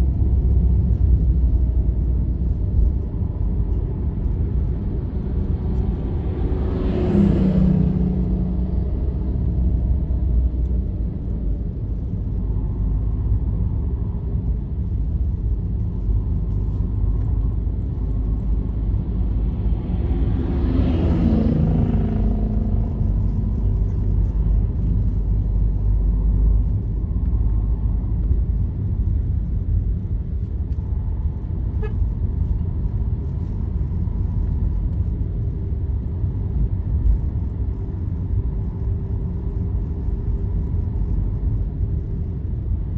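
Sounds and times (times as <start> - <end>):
vehicle road rumble: 0.0 - 42.9
vehicle passing by: 5.0 - 10.3, 19.4 - 24.2.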